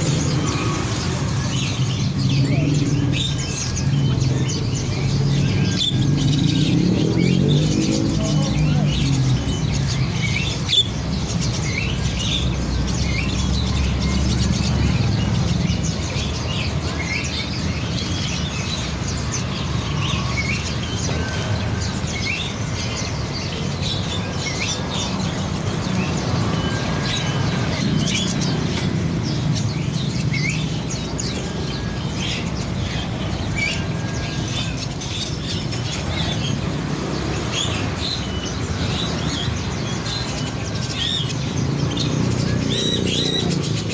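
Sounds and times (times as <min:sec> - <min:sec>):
songbirds chirping: 0:00.0 - 0:43.9.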